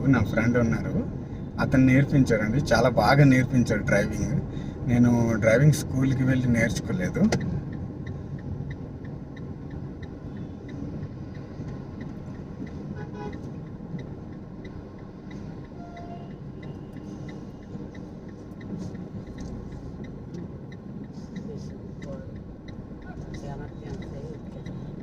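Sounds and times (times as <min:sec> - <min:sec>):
car engine and road hum: 0:00.0 - 0:25.0
even ticking: 0:00.0 - 0:25.0
car horn toot: 0:13.0 - 0:13.5, 0:15.8 - 0:16.4.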